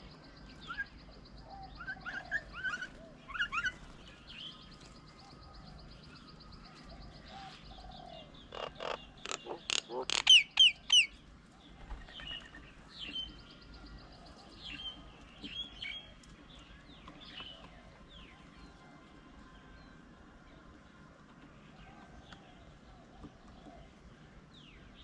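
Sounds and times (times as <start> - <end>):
birds calling sharply: 8.4 - 11.2.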